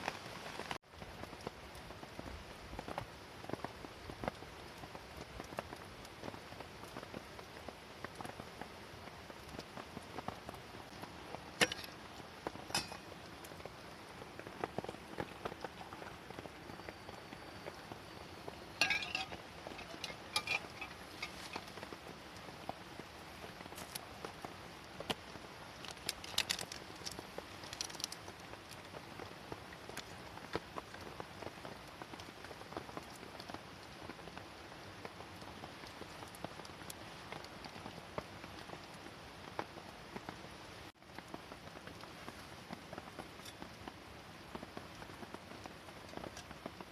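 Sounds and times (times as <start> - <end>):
rain pattering on a tent: 0.0 - 46.9
small ticks: 25.0 - 29.0.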